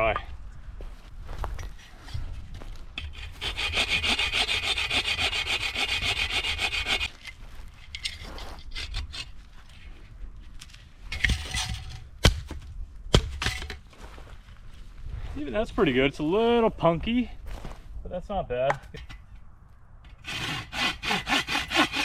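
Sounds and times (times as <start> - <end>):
hand saw cutting wood: 3.0 - 7.1, 20.1 - 22.0.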